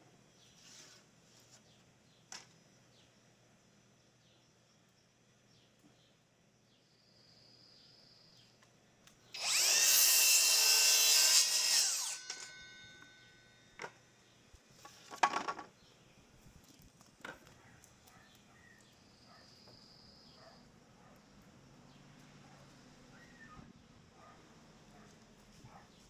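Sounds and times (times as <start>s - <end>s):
power drill drilling into wood: 9.4s - 12.6s.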